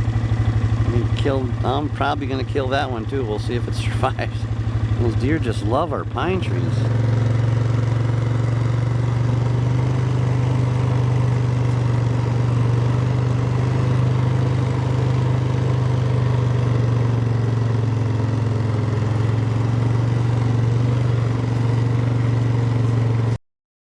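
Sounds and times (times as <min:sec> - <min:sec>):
engine running steadily: 0:00.0 - 0:23.4.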